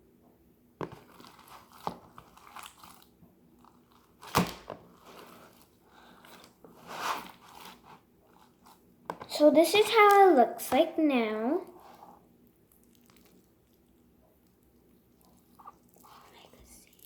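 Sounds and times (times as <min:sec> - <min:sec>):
slime squelch: 0:00.8 - 0:17.0
slime squished in hands: 0:01.1 - 0:05.8, 0:12.3 - 0:17.0.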